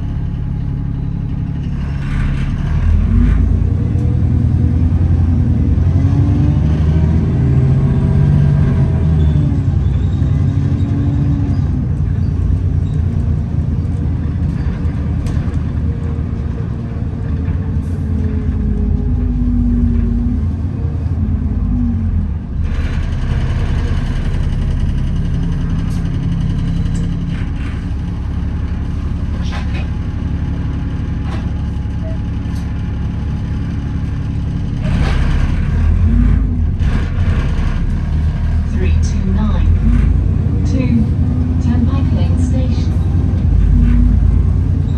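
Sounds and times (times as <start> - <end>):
bus engine rumble: 0.0 - 44.9
rattles and knocks: 1.3 - 4.1, 22.2 - 40.8.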